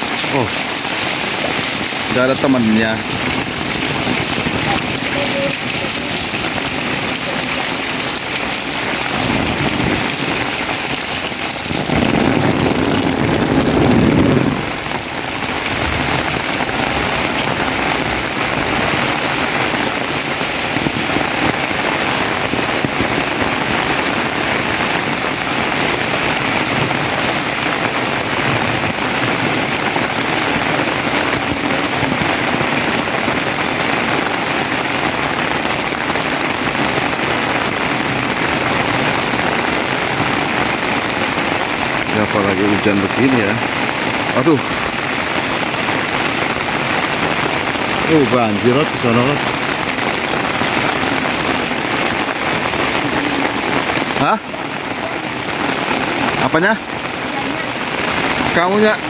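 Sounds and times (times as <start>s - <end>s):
heavy rain pouring: 0.0s - 59.0s
low rumble: 3.1s - 19.8s.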